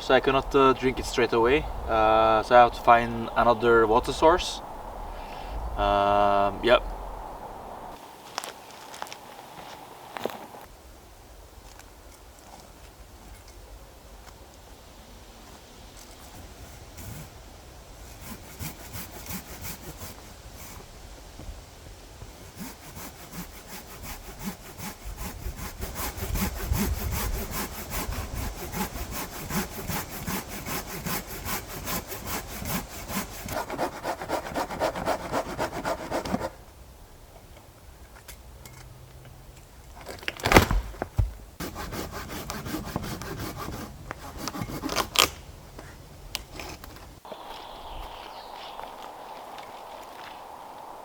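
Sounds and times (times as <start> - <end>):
hand saw cutting wood: 18.0 - 20.9, 22.3 - 36.6, 41.6 - 45.4.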